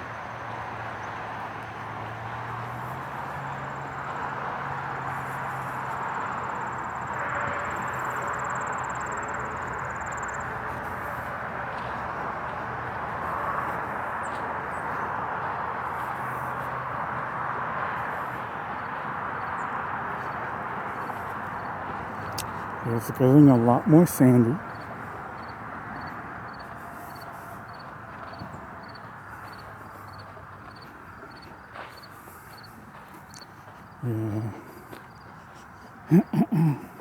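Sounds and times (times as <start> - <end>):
distant traffic hum: 0.0 - 37.0.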